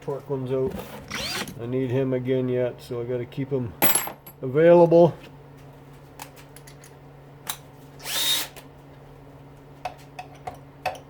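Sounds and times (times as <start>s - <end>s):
power drill whining: 1.1s - 1.5s, 8.0s - 8.6s.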